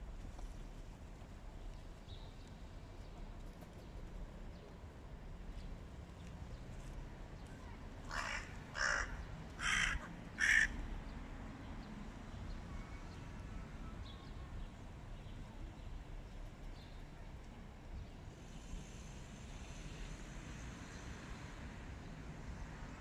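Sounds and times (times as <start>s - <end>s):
crow cawing: 8.1s - 10.8s.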